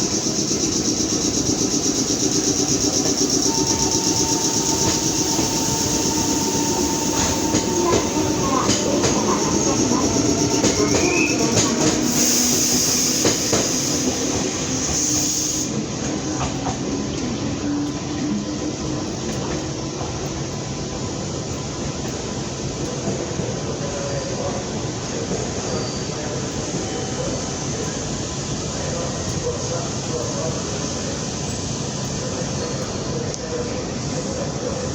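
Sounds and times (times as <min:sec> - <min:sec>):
wheels clacking over rail joints: 0:00.0 - 0:14.6
thin whining tone: 0:00.0 - 0:15.6
electric train running: 0:00.0 - 0:23.7.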